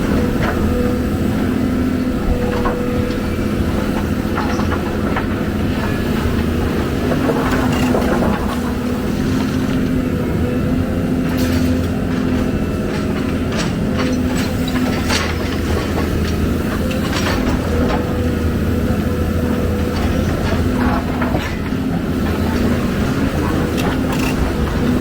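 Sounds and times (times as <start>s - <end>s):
excavator diesel engine drone: 0.0s - 25.0s.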